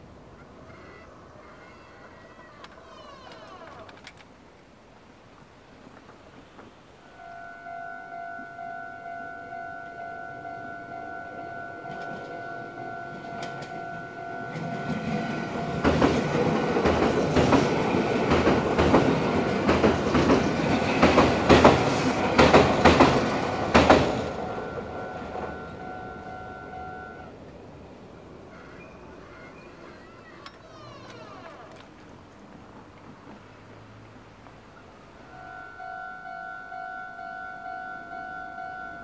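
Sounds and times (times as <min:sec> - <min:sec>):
electric train passing: 0:04.8 - 0:39.0
level crossing bell ringing: 0:07.2 - 0:15.9, 0:24.2 - 0:27.3, 0:35.3 - 0:39.0
train wheels clicking over rail joints: 0:11.2 - 0:26.4, 0:29.1 - 0:35.0.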